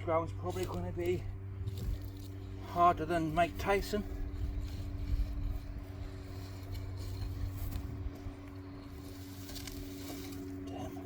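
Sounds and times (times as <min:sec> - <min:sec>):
constant hum: 0:00.0 - 0:11.0
digging tool in hard soil: 0:00.0 - 0:11.0
steady low rumble: 0:00.0 - 0:11.0
faint scrapes: 0:03.6 - 0:08.0.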